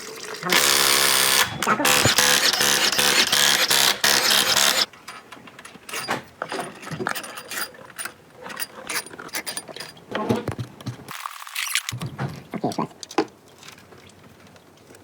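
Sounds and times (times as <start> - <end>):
metal tools clicking and clinking: 0.5 - 10.2.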